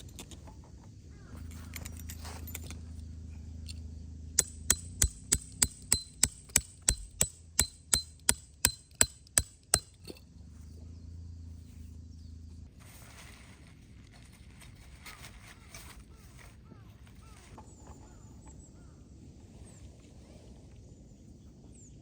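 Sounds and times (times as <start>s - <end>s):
hammer striking metal stake: 4.4s - 10.2s.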